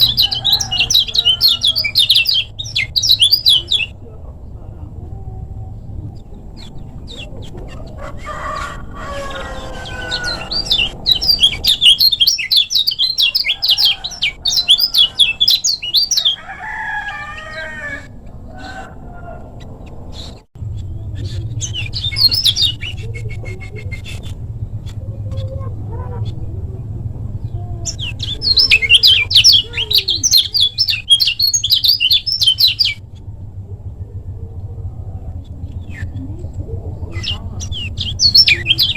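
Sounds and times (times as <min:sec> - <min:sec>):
bird rapid chirps: 0:00.0 - 0:04.0, 0:09.6 - 0:16.4, 0:19.8 - 0:26.4, 0:27.8 - 0:33.2, 0:37.1 - 0:38.9
steady low hum: 0:00.0 - 0:38.9.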